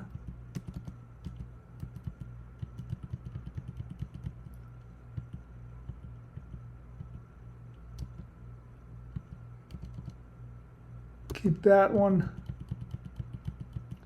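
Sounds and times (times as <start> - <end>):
keyboard keys tapping: 0.0 - 7.3, 9.1 - 10.2, 11.3 - 14.0
steady low hum: 0.0 - 14.0.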